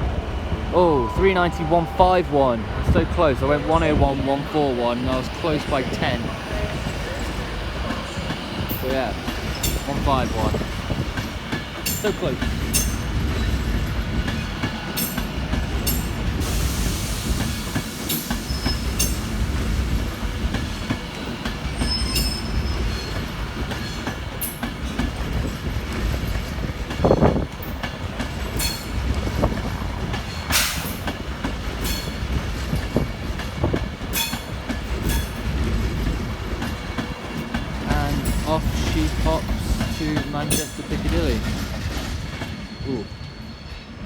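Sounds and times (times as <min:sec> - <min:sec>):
electric train rumbling: 0:00.0 - 0:44.0
wheels clicking over rail joints: 0:03.6 - 0:16.6, 0:17.4 - 0:42.8
faint wheel squeal: 0:21.8 - 0:23.2.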